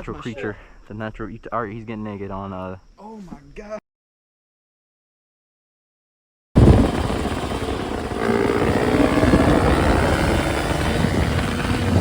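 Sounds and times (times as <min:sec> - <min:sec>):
dirt bike engine running: 0:06.6 - 0:12.0.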